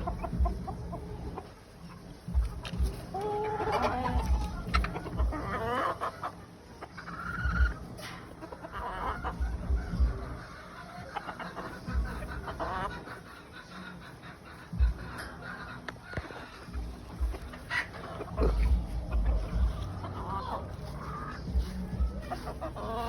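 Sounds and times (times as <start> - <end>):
dull low thumps: 0.0 - 1.2, 2.3 - 3.1, 4.1 - 5.5, 14.7 - 15.2, 16.7 - 17.6, 18.3 - 20.1
game birds clucking: 0.0 - 23.0.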